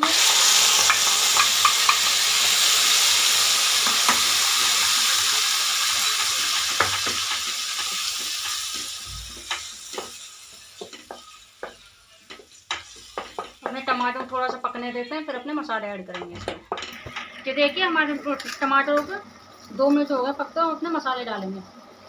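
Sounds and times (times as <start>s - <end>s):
tomato puree sizzling in hot oil: 0.0s - 22.0s
spatula knocking against pot: 10.8s - 14.8s.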